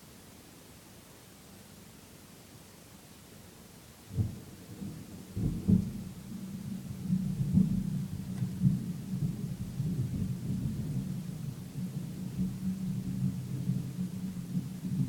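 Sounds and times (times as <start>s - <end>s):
thunder rolling rumble: 4.2s - 15.0s.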